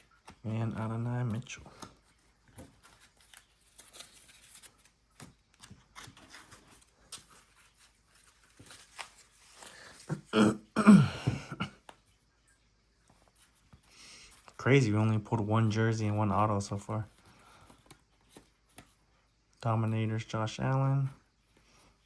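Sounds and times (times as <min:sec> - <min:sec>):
trading cards flicking and rustling: 0:00.0 - 0:10.1, 0:16.0 - 0:19.1.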